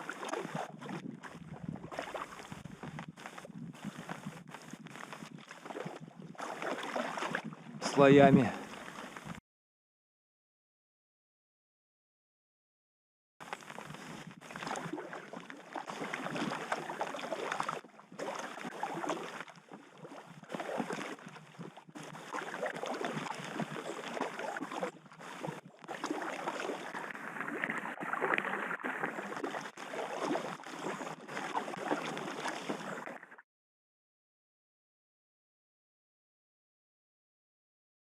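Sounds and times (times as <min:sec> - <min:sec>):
river water rushing and splashing: 0:06.4 - 0:09.1.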